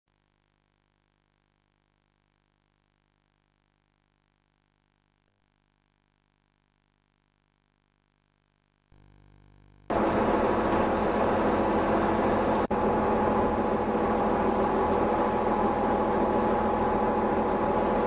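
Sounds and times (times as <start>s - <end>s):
faint electrical hum: 0.1s - 11.0s.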